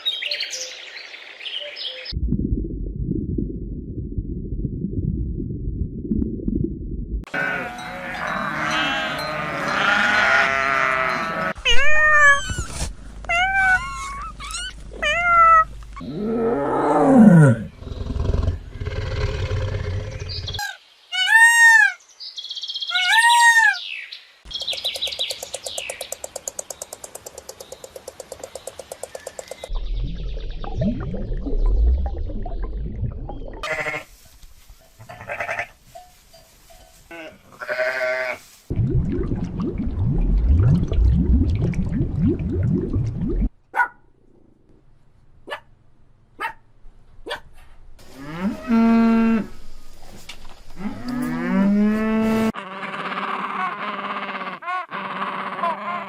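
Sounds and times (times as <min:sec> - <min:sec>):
low animal rumble: 0:15.7 - 0:20.6
long falling animal call: 0:50.8 - 0:56.0.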